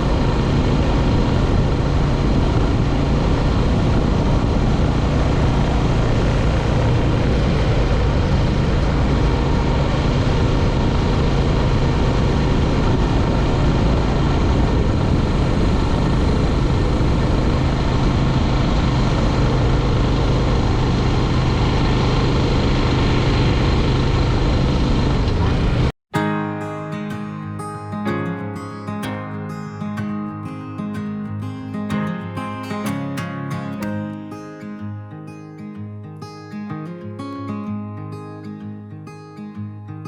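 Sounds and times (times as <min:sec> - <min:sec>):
motorcycle engine cruising: 0:00.0 - 0:25.9
wind rush: 0:00.0 - 0:25.9.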